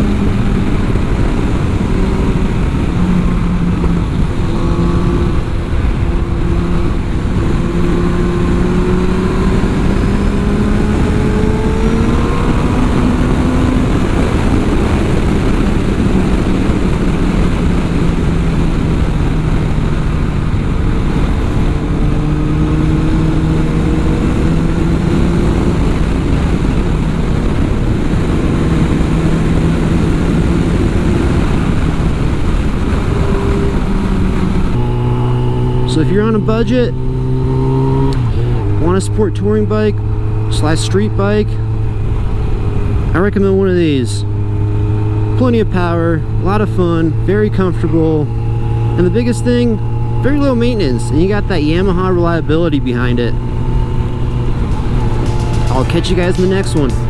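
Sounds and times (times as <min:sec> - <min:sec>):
wind rush on microphone: 0:00.0 - 0:35.9, 0:53.3 - 0:56.7
motorcycle engine revving: 0:00.0 - 0:57.0.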